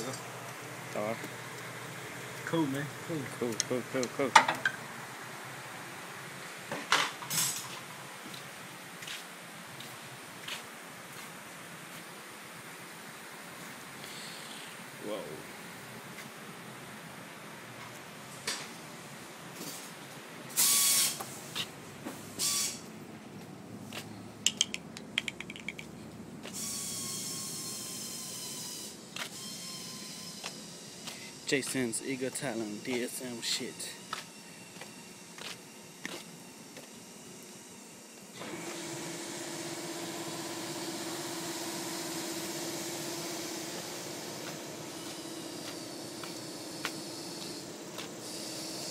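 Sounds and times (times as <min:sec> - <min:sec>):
machine running with hiss and hum: 0:00.0 - 0:24.1, 0:26.4 - 0:48.9
air tool hissing and whirring: 0:20.6 - 0:21.6, 0:38.4 - 0:48.9
ratchet clicks: 0:24.5 - 0:25.9.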